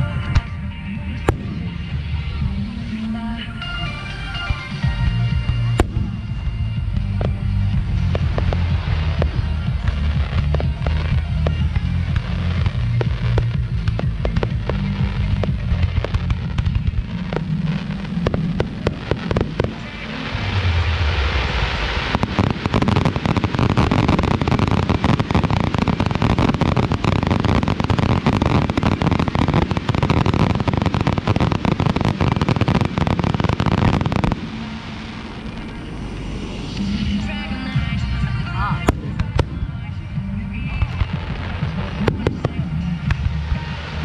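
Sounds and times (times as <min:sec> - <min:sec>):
fireworks bangs and crackles: 0:00.0 - 0:44.0.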